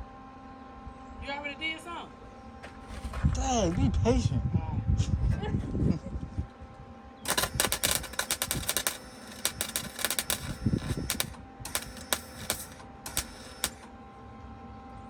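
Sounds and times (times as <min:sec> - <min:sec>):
welding arc crackling: 0:07.3 - 0:13.9.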